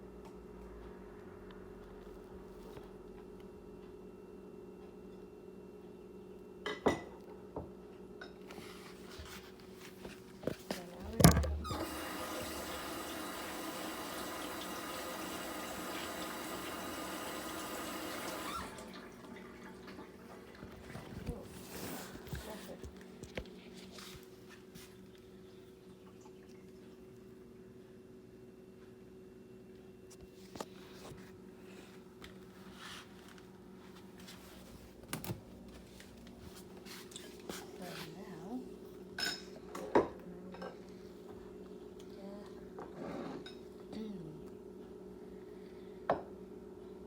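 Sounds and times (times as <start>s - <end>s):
low electrical hum: 0.0s - 47.0s
water running from tap: 11.7s - 20.6s.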